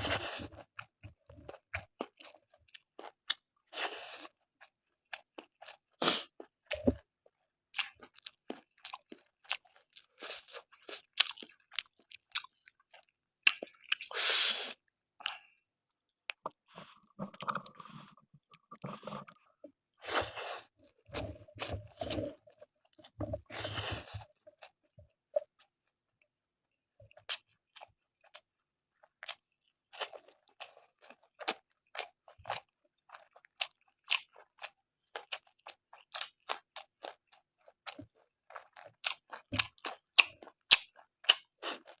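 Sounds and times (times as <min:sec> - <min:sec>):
person chewing and crunching: 0:00.0 - 0:14.2, 0:27.1 - 0:42.0.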